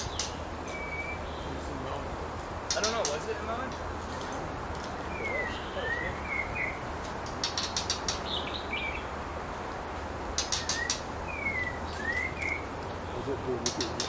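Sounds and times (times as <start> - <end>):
bird whistled notes: 0.0 - 1.3, 10.4 - 12.7
bird sharp ticking notes: 0.0 - 1.6, 2.5 - 3.9, 4.8 - 9.2, 10.3 - 14.0.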